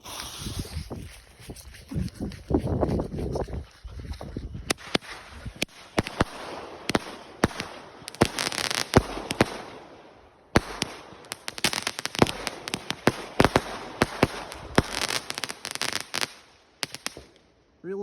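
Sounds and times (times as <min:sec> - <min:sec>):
firework hissing: 0:00.0 - 0:01.3, 0:04.7 - 0:09.8, 0:10.6 - 0:17.3
firework shots: 0:04.7 - 0:17.4.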